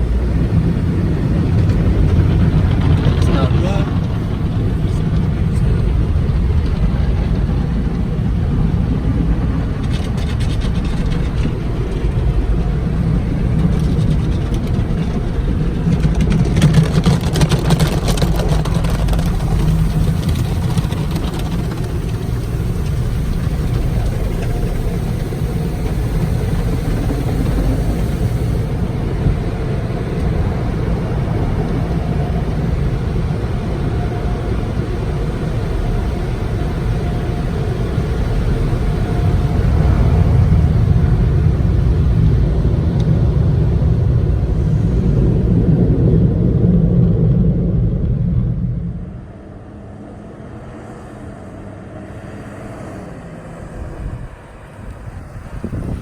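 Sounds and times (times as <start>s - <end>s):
car wash machinery rumble: 0.0s - 56.0s
water spray hissing: 18.8s - 28.9s.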